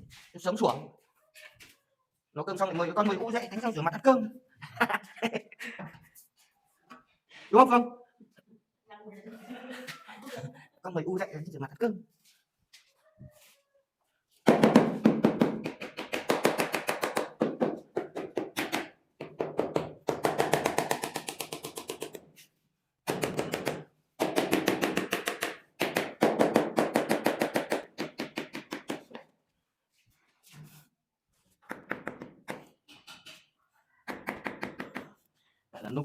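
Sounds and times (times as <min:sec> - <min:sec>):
rapid tapping or chopping: 0:14.5 - 0:22.2, 0:23.1 - 0:29.2.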